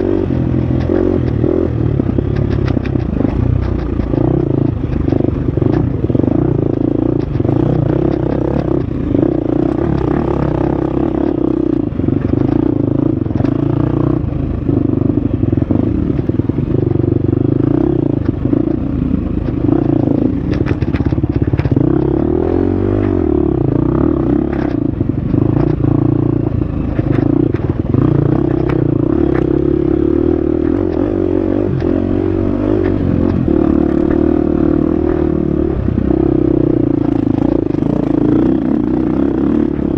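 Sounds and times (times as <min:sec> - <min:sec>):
dirt bike engine revving: 0:00.0 - 0:39.9
bike clattering over rough ground: 0:18.2 - 0:22.4.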